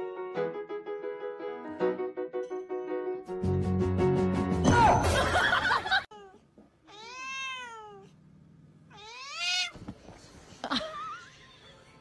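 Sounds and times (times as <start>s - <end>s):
cat meowing: 6.1s - 8.1s, 8.9s - 9.8s.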